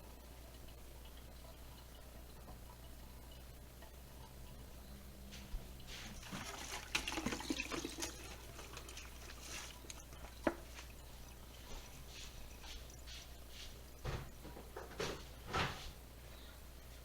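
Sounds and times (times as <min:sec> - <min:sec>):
liquid splashing and trickling: 0:05.8 - 0:14.4.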